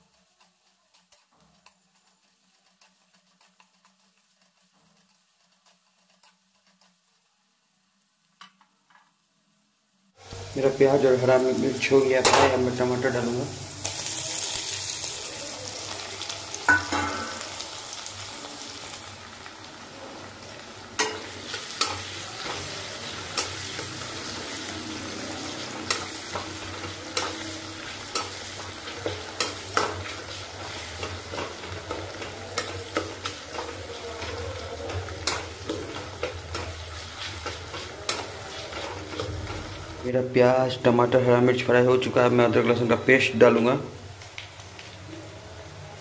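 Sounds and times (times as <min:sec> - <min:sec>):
vegetables sizzling in hot oil: 0:00.0 - 0:46.0
metal spoon clinking on pan: 0:16.7 - 0:17.4, 0:21.0 - 0:22.0.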